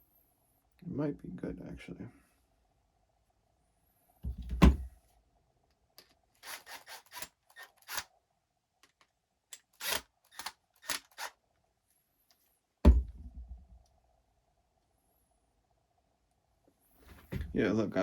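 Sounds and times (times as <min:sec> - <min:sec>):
plastic parts clicking and scraping: 0:06.0 - 0:08.1, 0:08.8 - 0:11.4
loud thump: 0:12.9 - 0:13.6.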